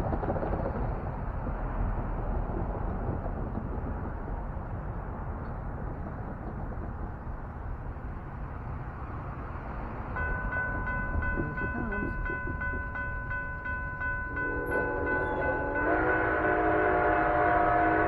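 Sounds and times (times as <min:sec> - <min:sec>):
locomotive bell ringing: 0:10.1 - 0:18.0
train chime whistle: 0:10.2 - 0:18.0.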